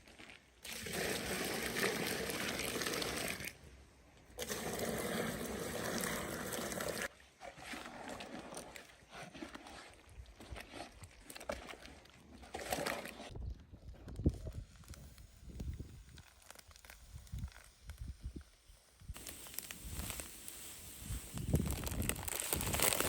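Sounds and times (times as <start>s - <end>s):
water being poured: 0.2s - 3.6s, 4.4s - 13.3s, 19.2s - 23.0s.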